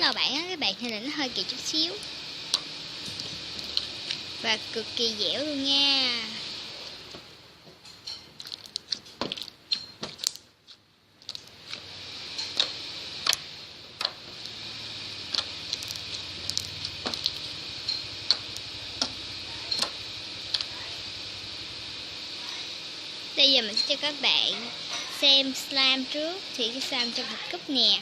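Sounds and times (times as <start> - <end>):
steady hiss: 0.0 - 7.6, 11.4 - 28.0
slime squeezed with sticky pops: 8.4 - 10.5, 15.3 - 17.5.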